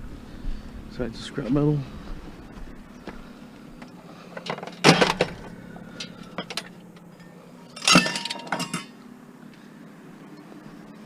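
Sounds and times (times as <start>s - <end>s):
scrap metal clattering and clinking: 3.8s - 9.0s.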